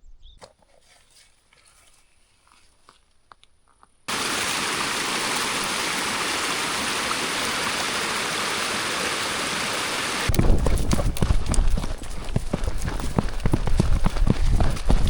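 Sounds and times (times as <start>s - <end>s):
fast-flowing stream rushing: 4.1s - 10.9s.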